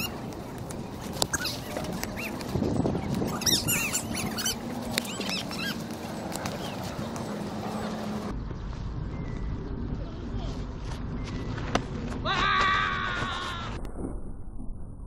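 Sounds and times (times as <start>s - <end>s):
birds chirping: 0.0s - 12.0s
steady outdoor noise: 0.0s - 15.0s
low rumble: 7.2s - 12.3s, 13.6s - 15.0s.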